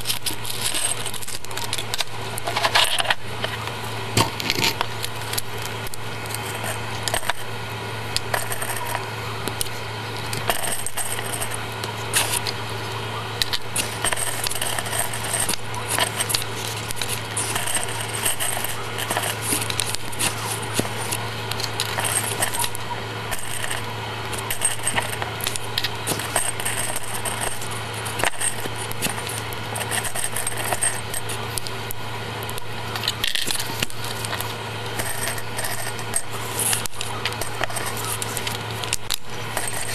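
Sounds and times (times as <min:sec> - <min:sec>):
steady low hum: 0:00.0 - 0:39.9
plastic pieces clicking: 0:32.4 - 0:39.9.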